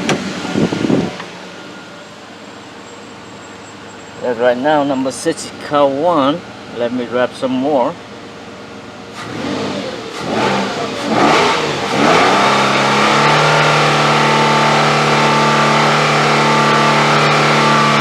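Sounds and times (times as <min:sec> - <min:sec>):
truck engine revving: 0:00.0 - 0:02.2, 0:09.1 - 0:18.0.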